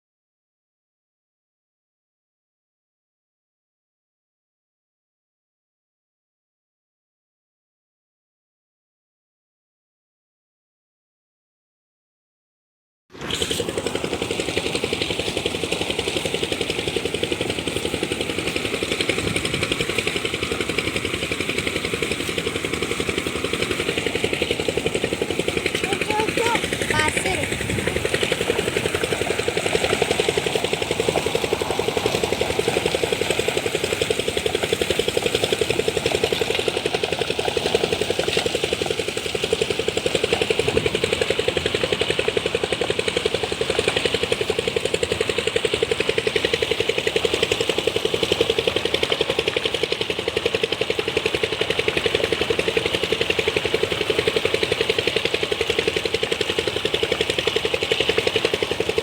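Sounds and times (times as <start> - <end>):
engine running steadily: 13.1 - 59.0.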